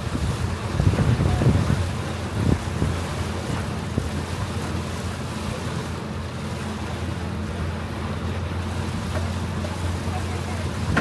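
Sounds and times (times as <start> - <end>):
wind on microphone: 0.0 - 4.3, 10.8 - 11.0
boat engine humming: 0.0 - 11.0
rushing water: 0.0 - 11.0.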